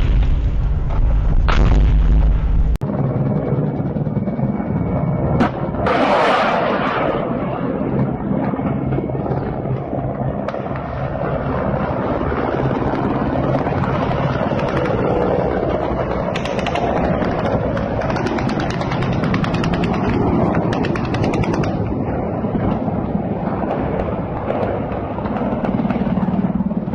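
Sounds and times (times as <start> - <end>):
helicopter engine and rotor rumble: 2.8 - 26.9
helicopter blades chopping: 12.5 - 26.9.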